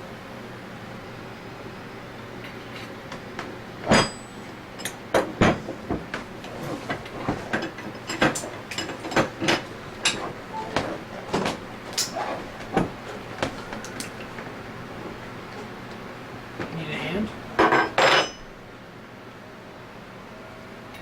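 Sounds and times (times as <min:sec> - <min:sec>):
metal tools clanking: 0:03.8 - 0:15.8, 0:17.6 - 0:18.4.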